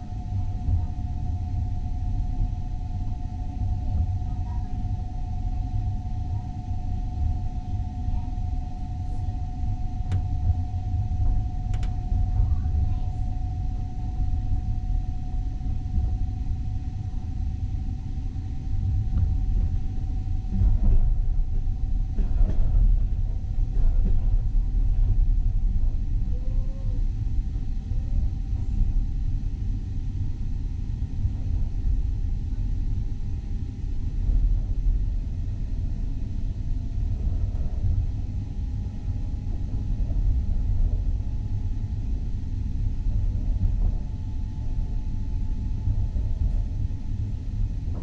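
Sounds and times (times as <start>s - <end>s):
thin steady whine: 0.0s - 48.0s
train rumbling on rails: 19.2s - 28.9s.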